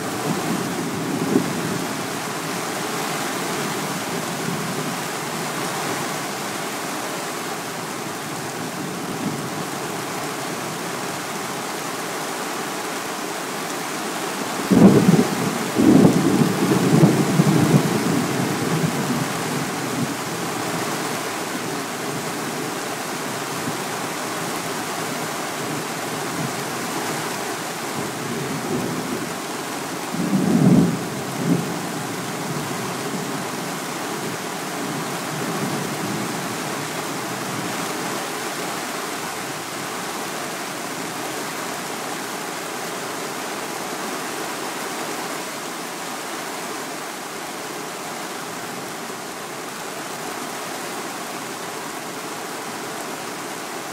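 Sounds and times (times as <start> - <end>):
heavy rain: 0.0 - 53.9.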